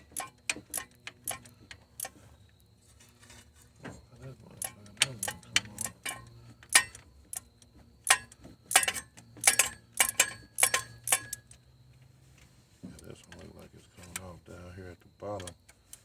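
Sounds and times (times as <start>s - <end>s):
socket ratchet clicking: 0.0s - 2.1s, 4.6s - 11.6s.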